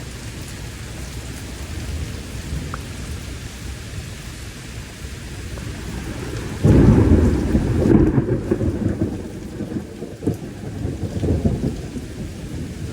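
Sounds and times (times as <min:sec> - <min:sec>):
steady rain: 0:00.0 - 0:12.9
thunder rumbling: 0:04.8 - 0:12.9.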